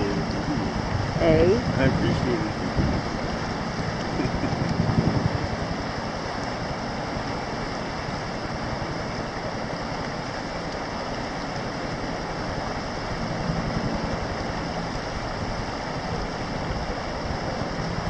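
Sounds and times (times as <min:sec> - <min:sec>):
helicopter engine and rotor: 0:00.0 - 0:18.0.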